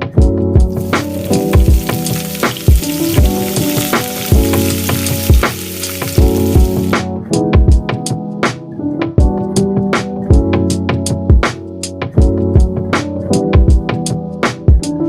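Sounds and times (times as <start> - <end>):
background music with steady beat: 0.0 - 15.0
food sizzling in a pan: 0.7 - 7.0.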